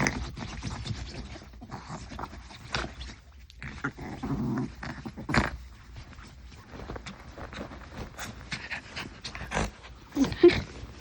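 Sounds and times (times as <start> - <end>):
dog growling in play: 1.2 - 5.8, 8.1 - 10.9.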